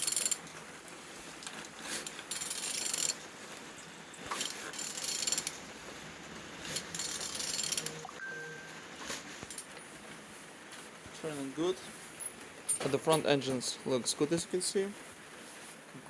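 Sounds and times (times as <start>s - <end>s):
engine clicking and whirring: 0.0s - 0.6s, 4.2s - 5.8s, 6.6s - 8.0s.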